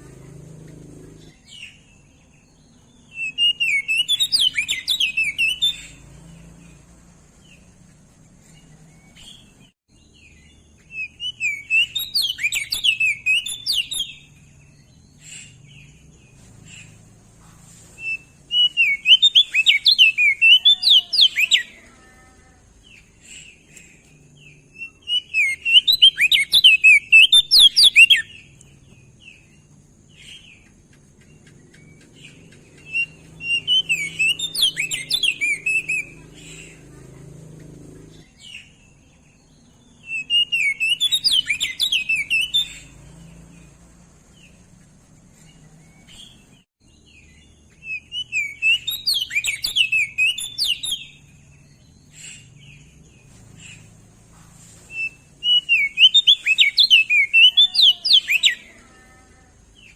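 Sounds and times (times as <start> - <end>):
bird warbling chirps: 2.8 - 7.8, 8.5 - 17.2, 18.0 - 21.9, 30.2 - 38.8, 39.9 - 44.8, 47.2 - 54.1, 54.9 - 58.8.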